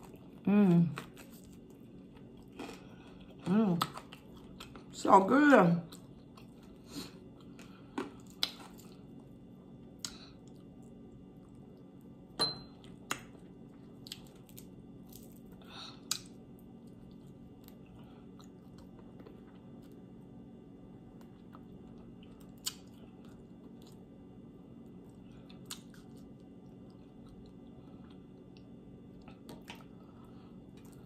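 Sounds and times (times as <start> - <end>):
chewing: 5.9 - 9.4, 12.8 - 20.0.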